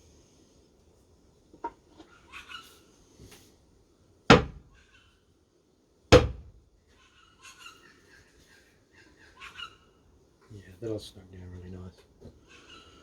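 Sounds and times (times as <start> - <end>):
wooden knocks: 4.3 - 4.6, 6.1 - 6.5.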